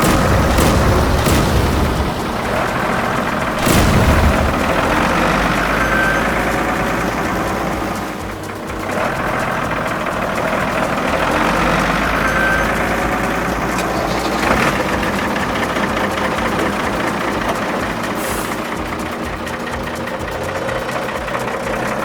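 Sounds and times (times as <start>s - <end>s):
truck engine idling: 0.0s - 22.0s
short high hiss: 10.3s - 20.1s.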